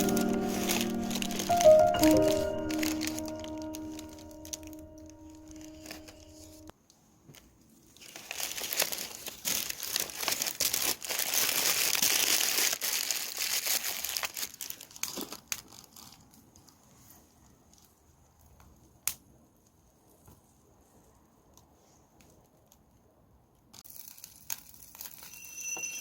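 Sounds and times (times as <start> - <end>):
crinkling and crumpling: 0.0 - 18.8, 23.8 - 25.5.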